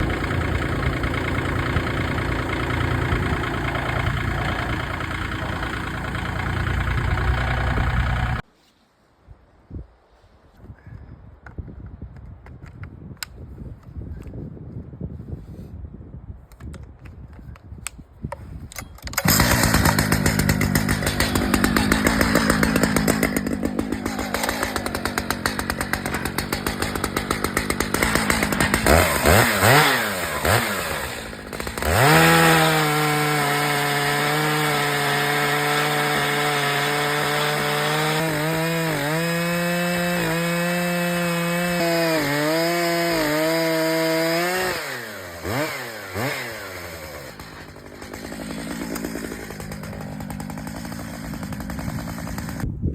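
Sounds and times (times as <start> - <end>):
chainsaw cutting log: 0.0 - 8.4, 19.0 - 52.7.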